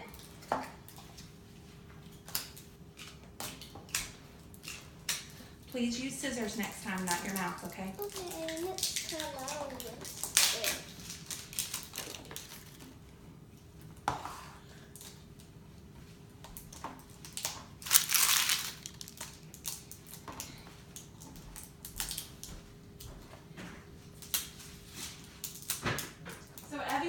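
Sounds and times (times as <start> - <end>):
crunching rustle: 17.4 - 19.8.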